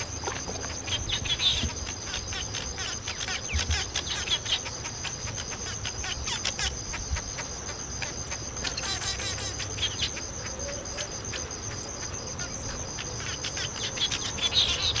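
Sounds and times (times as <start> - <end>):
bird chirps: 0.0 - 4.7
high-pitched insect trill: 0.0 - 15.0.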